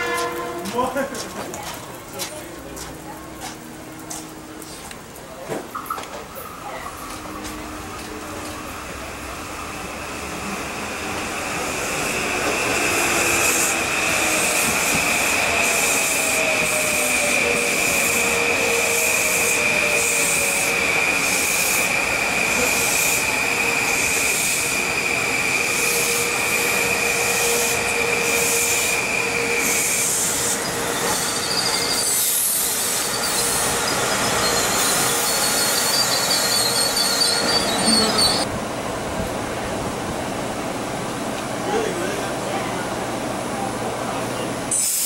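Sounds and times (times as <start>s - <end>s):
wheels rushing on rail: 0.0s - 45.0s
train wheels squealing: 11.4s - 38.5s.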